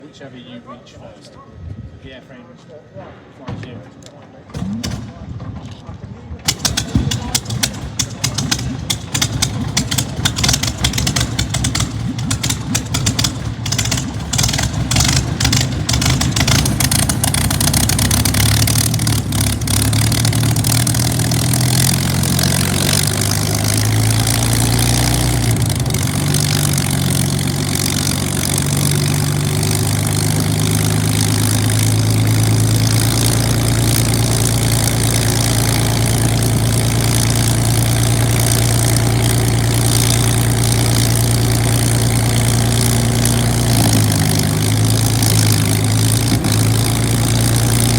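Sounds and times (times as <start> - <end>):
piston aero engine starting: 6.4 - 47.9.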